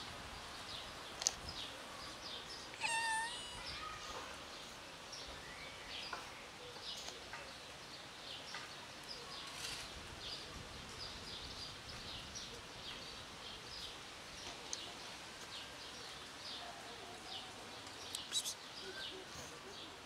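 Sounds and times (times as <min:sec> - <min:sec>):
faint background hiss: 0:00.0 - 0:20.0
small bird chirping: 0:02.8 - 0:03.9, 0:18.0 - 0:19.1.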